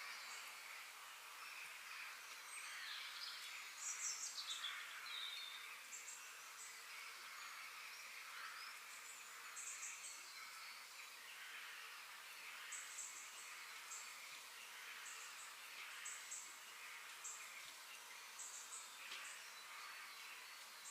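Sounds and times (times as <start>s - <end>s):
soft steady hiss: 0.0s - 20.9s.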